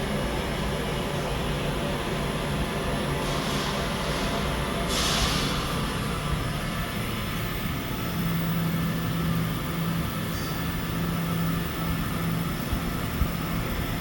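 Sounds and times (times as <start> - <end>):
hiss: 3.2 - 5.9
machine hum: 3.9 - 14.0.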